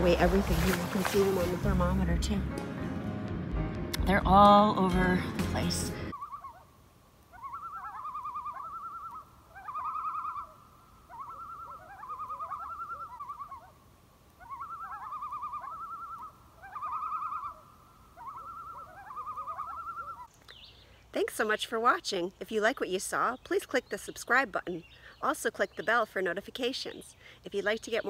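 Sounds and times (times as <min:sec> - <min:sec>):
bird warbling trills: 0:06.1 - 0:06.7, 0:07.3 - 0:13.7, 0:14.4 - 0:20.8.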